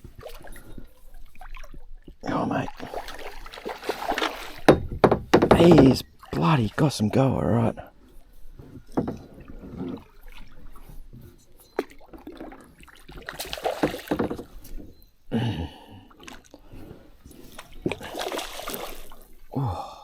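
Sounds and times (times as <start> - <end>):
fish thrashing water splashing: 0.0 - 7.2, 11.7 - 14.7, 17.5 - 19.4.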